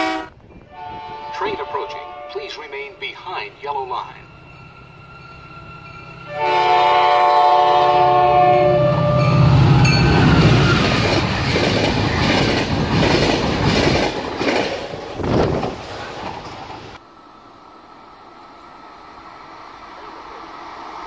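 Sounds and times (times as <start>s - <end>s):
locomotive horn: 0.0s - 3.0s, 6.2s - 10.9s
locomotive engine passing: 1.0s - 21.0s
train wheels clacking over rail joints: 10.2s - 17.0s.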